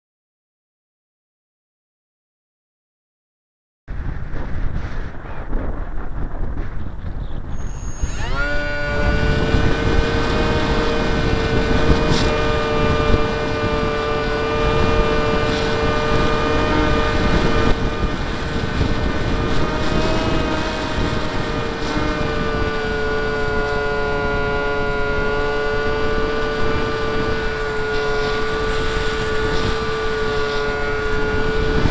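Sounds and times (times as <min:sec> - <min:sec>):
wind rushing over microphone: 0:03.9 - 0:31.9
electric motor high-pitched whine: 0:07.5 - 0:31.9.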